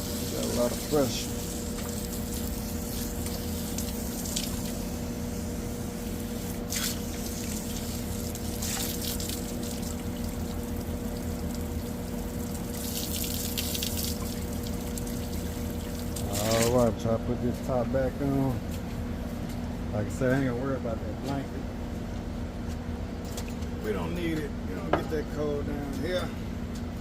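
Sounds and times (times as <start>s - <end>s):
hose water spraying: 0.0s - 16.8s
steady low hum: 0.0s - 27.0s.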